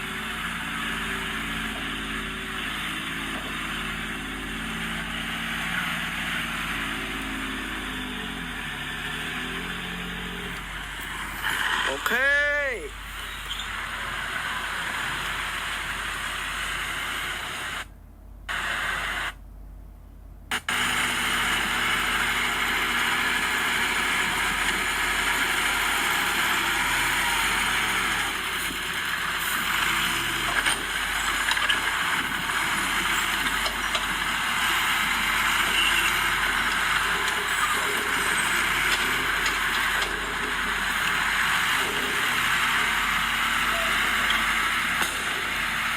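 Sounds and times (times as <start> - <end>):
diesel earthmoving machinery: 0.0 - 17.9, 18.5 - 19.4, 20.5 - 45.9.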